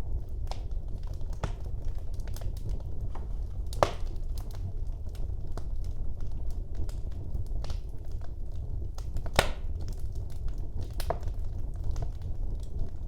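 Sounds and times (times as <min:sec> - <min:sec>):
low rumble of flame: 0:00.0 - 0:13.0
wood fire crackling: 0:00.0 - 0:13.0
loud fire pop: 0:03.8 - 0:04.1, 0:09.4 - 0:09.6.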